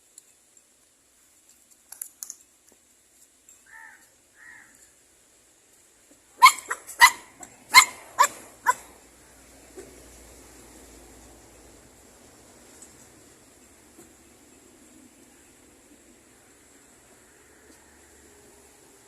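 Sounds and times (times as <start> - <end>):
dog barking: 6.4 - 8.9.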